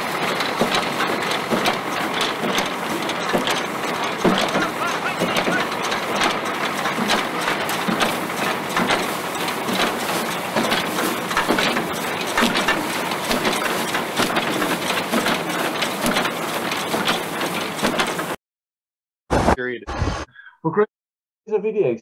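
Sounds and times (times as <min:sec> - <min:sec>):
farm machinery clattering: 0:00.0 - 0:18.4.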